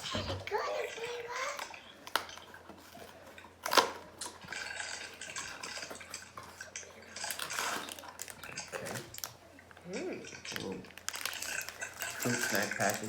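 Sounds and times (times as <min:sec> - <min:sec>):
packaging rustling: 0:01.5 - 0:09.4, 0:11.0 - 0:13.0.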